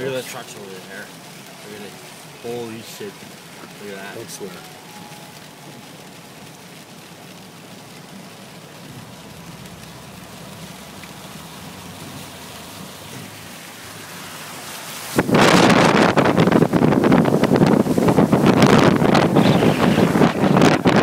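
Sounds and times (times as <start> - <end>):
tyres hissing through water: 8.6 - 21.0
wind buffeting microphone: 15.0 - 21.0.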